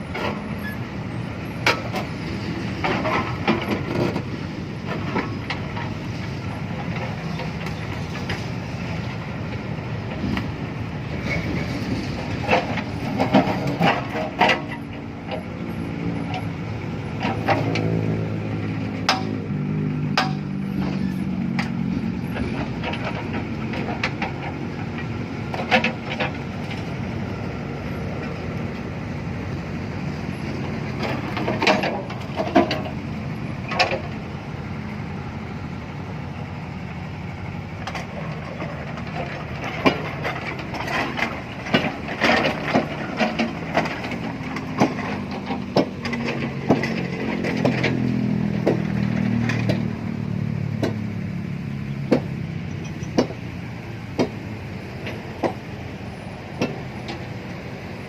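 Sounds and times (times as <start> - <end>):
excavator engine running: 0.0 - 58.0
sharp knocks and clanks: 18.7 - 26.9, 37.8 - 51.2, 52.0 - 55.9, 56.5 - 57.4.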